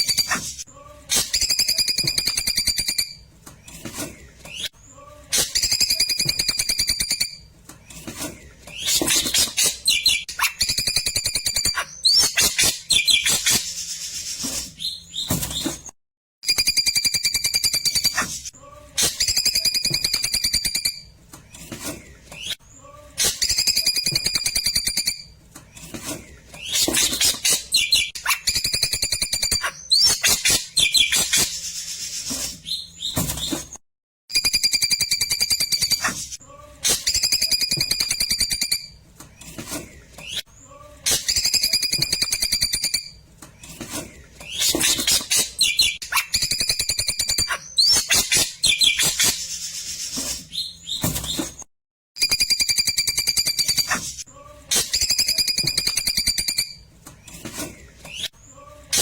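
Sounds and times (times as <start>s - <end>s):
songbird whistling and trilling: 8.8s - 13.6s, 26.6s - 31.5s, 44.5s - 49.3s.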